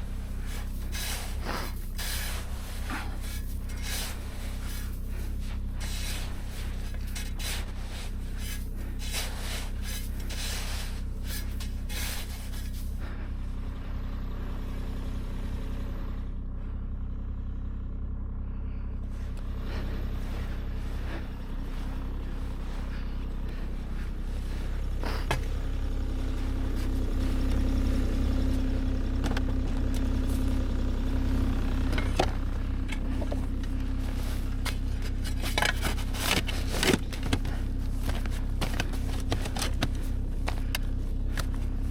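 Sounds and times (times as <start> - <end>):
scraping and rubbing: 0.0 - 13.1, 31.8 - 41.9
engine running with low hum: 0.0 - 41.9.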